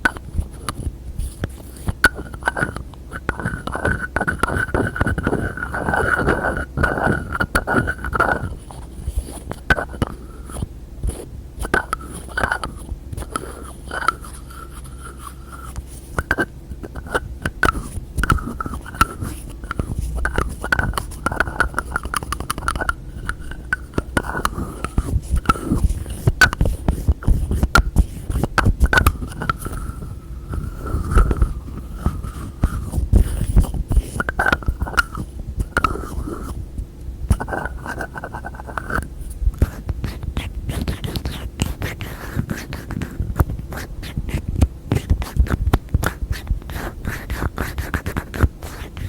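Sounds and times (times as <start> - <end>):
lids scraping: 11.6 - 36.6, 37.3 - 49.0.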